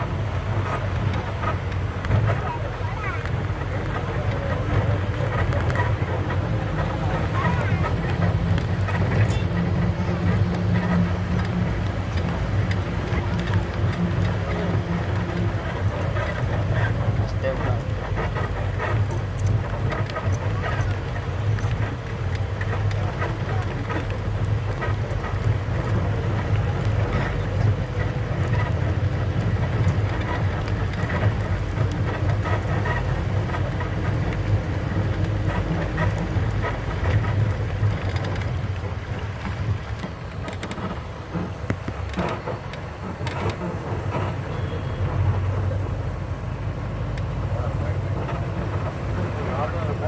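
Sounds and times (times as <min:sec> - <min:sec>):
vehicle engine and tyres rumbling: 0:00.0 - 0:50.0
small clicks and knocks: 0:18.1 - 0:44.4.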